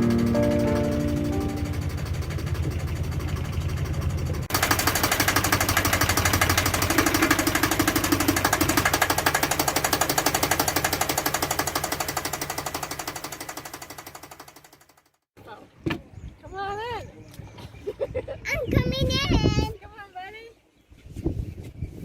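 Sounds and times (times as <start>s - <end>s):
boat engine running: 0.0s - 15.1s.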